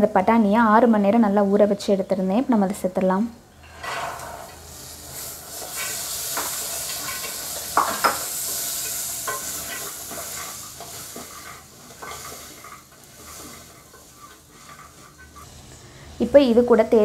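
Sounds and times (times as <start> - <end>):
peas sizzling in oil: 3.5 - 17.0
spatula scraping pot: 5.5 - 15.5
spatula knocking pot: 7.8 - 8.2.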